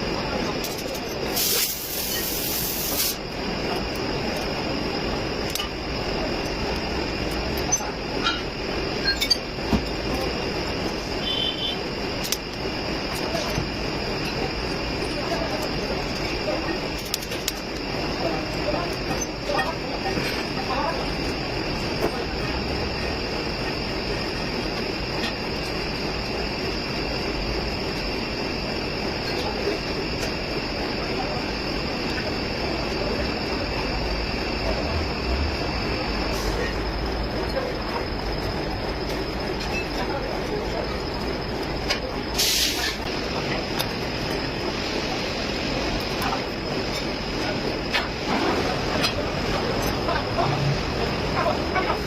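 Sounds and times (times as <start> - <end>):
loud air hiss: 1.3 - 3.3, 42.3 - 43.1.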